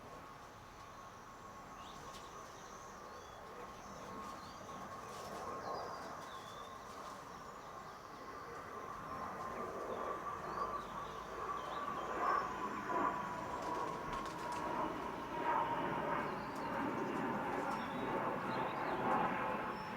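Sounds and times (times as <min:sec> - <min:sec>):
steady background hum: 0:00.0 - 0:19.9
birds chirping: 0:15.7 - 0:19.9.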